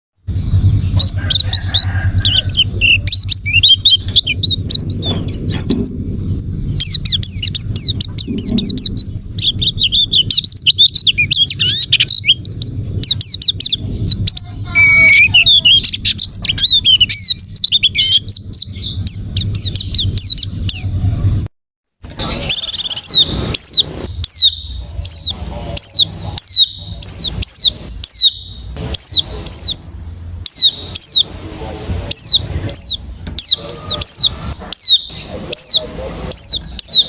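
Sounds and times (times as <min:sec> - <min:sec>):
lower multi-tone bird call: 0:00.3 - 0:21.2, 0:22.2 - 0:37.0
bird twittering song: 0:00.3 - 0:21.4, 0:22.1 - 0:37.0.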